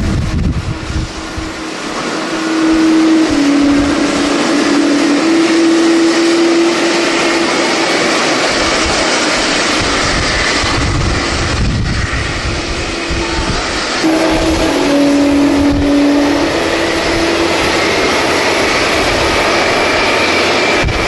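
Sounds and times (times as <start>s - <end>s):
low rumble: 0.0s - 7.5s
jet airliner engines running: 0.0s - 21.0s.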